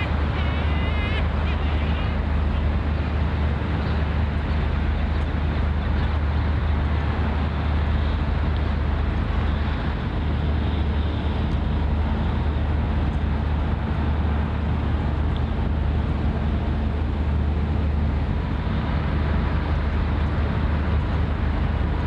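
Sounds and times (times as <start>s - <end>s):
ship engine drone: 0.0s - 22.0s.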